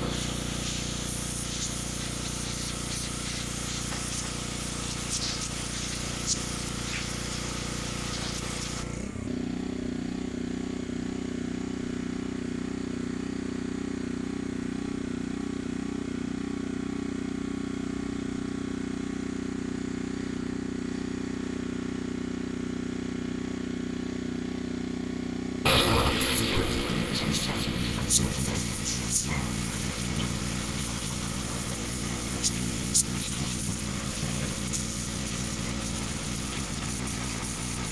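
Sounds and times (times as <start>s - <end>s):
water jet hissing: 0.0s - 9.3s, 25.7s - 37.9s
pressure washer engine running: 0.0s - 37.9s.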